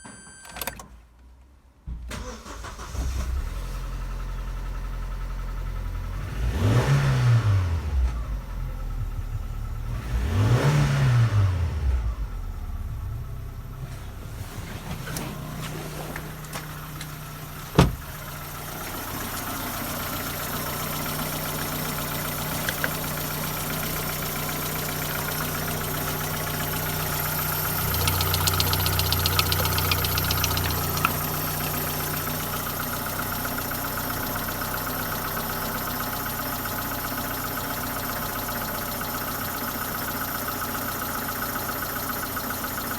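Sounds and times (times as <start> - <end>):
car engine idling: 3.9 - 6.9, 7.7 - 10.6, 11.2 - 42.9
sharp click: 28.0 - 31.7.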